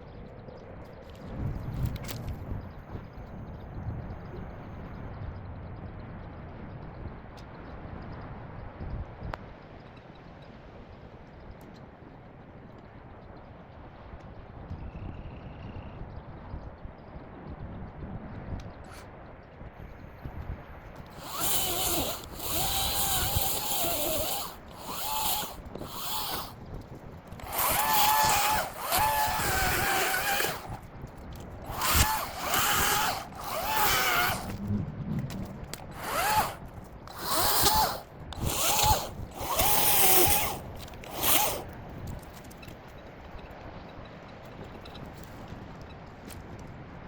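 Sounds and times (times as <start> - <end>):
electric chainsaw motor whine: 21.1 - 26.7, 27.3 - 34.6, 35.2 - 42.2.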